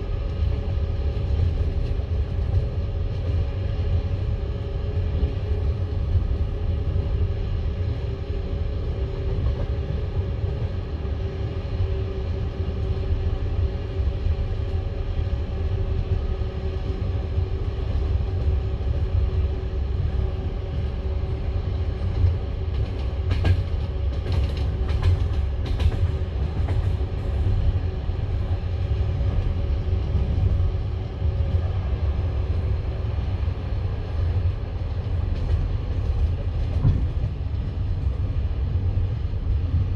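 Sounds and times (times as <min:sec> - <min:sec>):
train wheels rumbling on rails: 0:00.0 - 0:39.9
sharp clicks of train wheels: 0:22.0 - 0:28.6, 0:34.1 - 0:38.2.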